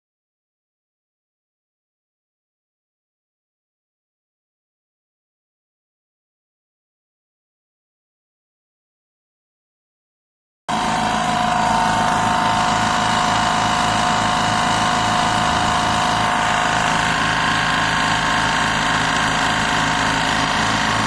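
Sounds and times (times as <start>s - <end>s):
air compressor running: 10.7s - 21.0s.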